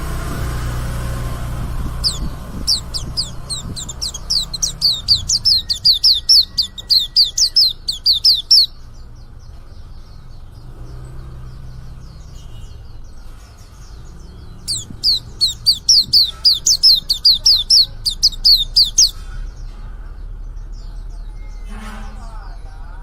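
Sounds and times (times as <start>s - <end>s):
bird twittering song: 0.0s - 23.0s
faint bird chirps: 1.9s - 8.8s, 14.2s - 19.2s.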